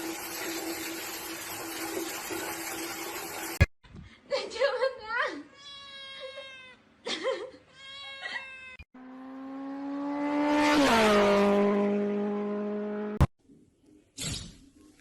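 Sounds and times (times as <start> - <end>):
cat meowing: 5.5 - 6.8, 7.7 - 8.8
fast engine passing by: 9.0 - 13.2.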